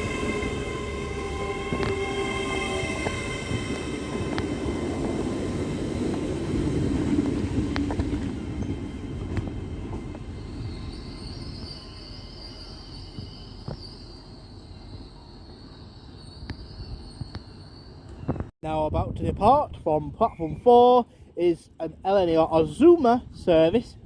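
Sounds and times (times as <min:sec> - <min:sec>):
train rumbling: 0:00.0 - 0:18.5.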